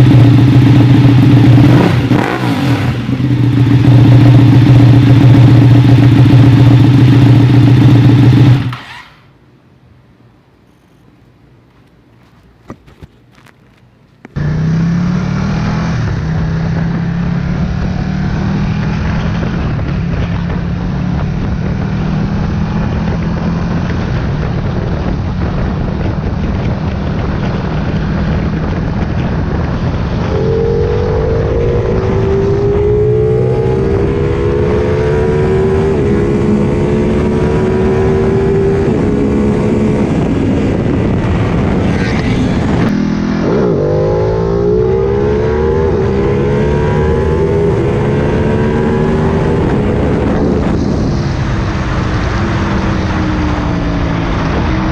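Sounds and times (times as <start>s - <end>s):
motorcycle engine running loudly: 0.0s - 8.9s, 14.4s - 54.9s.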